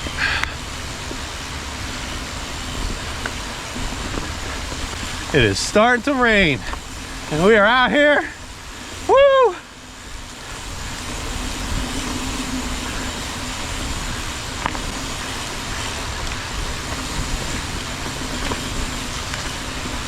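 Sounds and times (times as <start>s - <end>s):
bike clicks and rattles: 0.0s - 20.0s
tyres rolling over dirt: 0.0s - 20.0s
wind on microphone: 0.0s - 20.0s.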